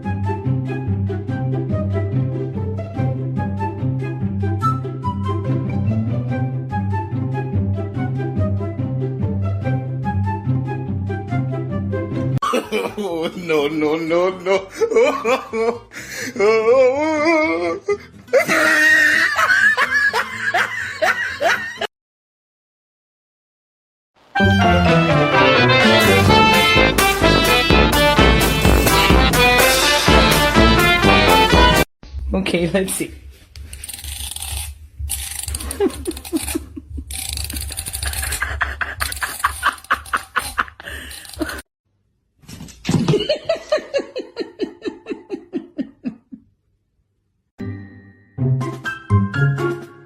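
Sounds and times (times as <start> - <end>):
person laughing: 12.4 - 21.9, 35.5 - 41.6, 43.0 - 46.5.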